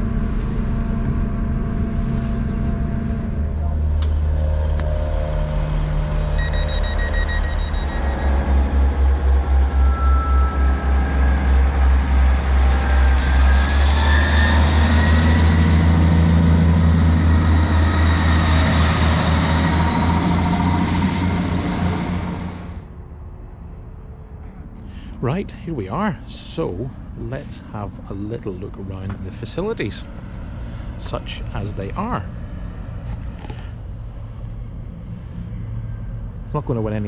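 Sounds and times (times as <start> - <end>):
diesel train rumbling: 0.0 - 22.9, 24.8 - 37.0
train whine rising in pitch: 0.0 - 23.6.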